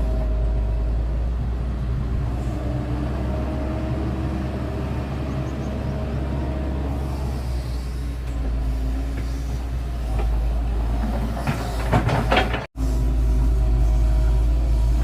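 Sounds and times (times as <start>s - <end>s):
diesel engine rumbling: 0.0s - 15.0s.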